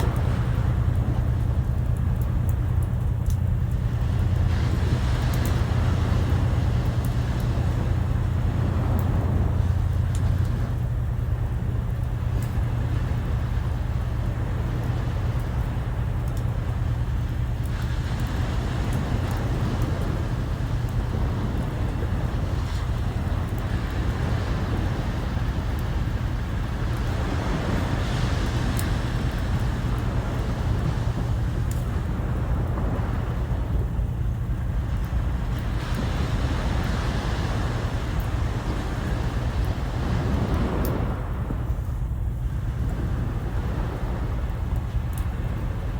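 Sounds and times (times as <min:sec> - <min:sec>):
faint clicks: 0:00.0 - 0:08.3, 0:09.8 - 0:12.7, 0:14.6 - 0:21.0, 0:28.0 - 0:32.0, 0:42.9 - 0:45.6
sea waves washing in: 0:00.0 - 0:45.9
wind buffeting microphone: 0:00.0 - 0:45.9.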